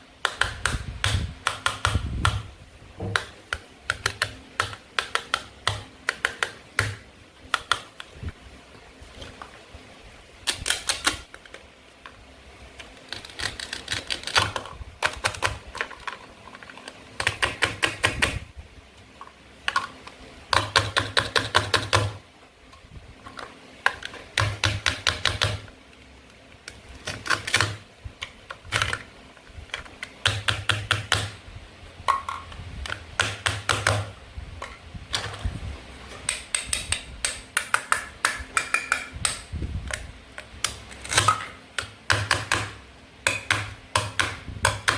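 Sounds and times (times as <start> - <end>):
toy knife cutting toy fruit: 10.4 - 11.3.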